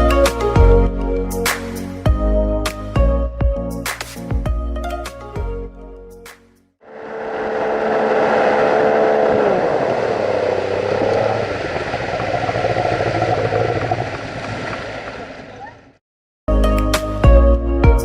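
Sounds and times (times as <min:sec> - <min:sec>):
outboard boat motor: 0:06.8 - 0:16.0.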